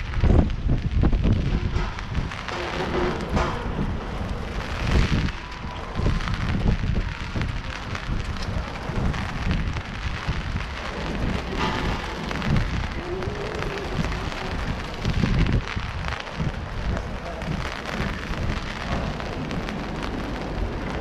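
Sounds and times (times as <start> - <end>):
low rumble: 0.0 - 21.0
steady rain: 0.0 - 21.0.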